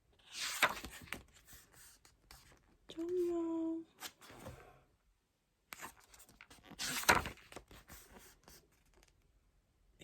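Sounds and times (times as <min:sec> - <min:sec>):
paper and card rustling: 0:00.3 - 0:03.4, 0:05.8 - 0:09.0.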